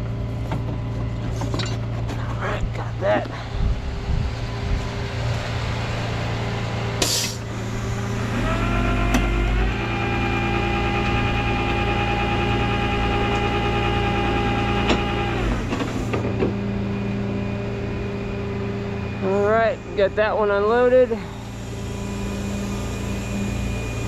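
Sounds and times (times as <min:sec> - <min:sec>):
diesel engine running: 0:00.0 - 0:24.0
hydraulic whine: 0:00.0 - 0:24.0
short hiss: 0:07.0 - 0:07.5.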